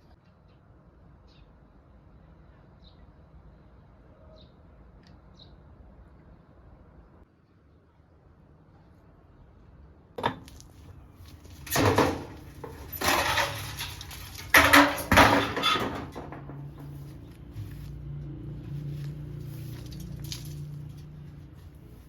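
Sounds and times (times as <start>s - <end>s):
pots and utensils clattering: 11.5s - 17.0s.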